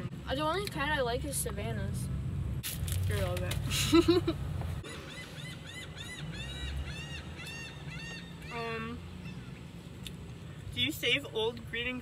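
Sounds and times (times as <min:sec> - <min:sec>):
bird calling: 0:04.8 - 0:09.8.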